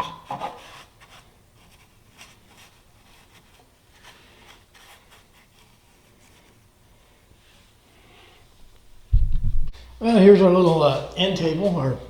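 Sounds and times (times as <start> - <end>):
faint rubbing and scratching: 0.3 - 11.9.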